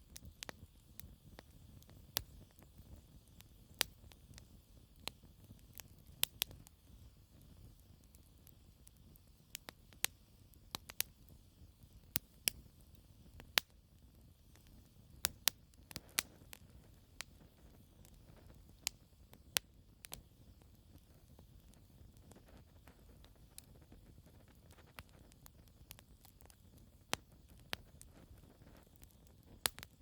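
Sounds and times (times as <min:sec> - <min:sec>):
low rumble of flame: 0:00.0 - 0:30.0
sharp pops of fire: 0:00.0 - 0:30.0
campfire logs crackling: 0:24.7 - 0:30.0.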